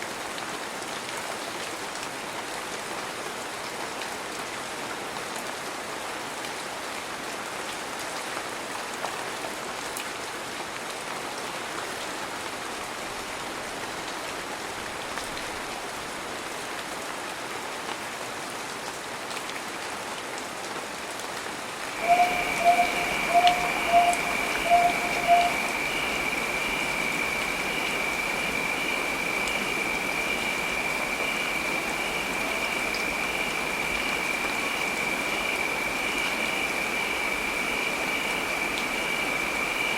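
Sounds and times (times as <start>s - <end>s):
heavy rain falling: 0.0s - 39.9s
steady high-pitched tone: 22.0s - 35.5s.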